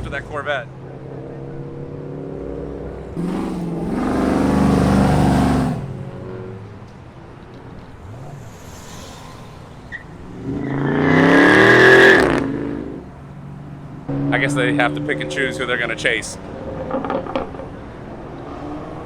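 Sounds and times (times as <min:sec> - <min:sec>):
car accelerating past: 0:00.0 - 0:13.2
car engines idling: 0:00.0 - 0:19.0.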